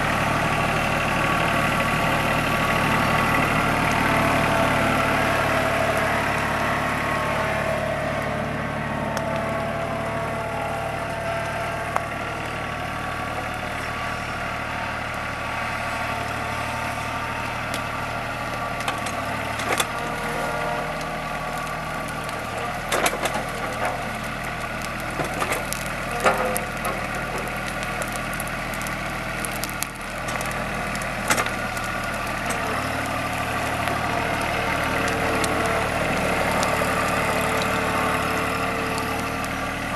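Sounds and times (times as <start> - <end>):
tractor engine running: 0.0 - 39.9
wood cracking and snapping: 17.4 - 39.9.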